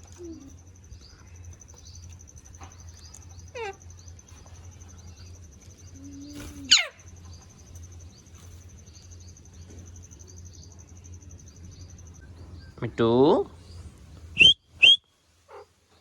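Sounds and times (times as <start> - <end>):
parakeet calls: 6.6 - 7.0.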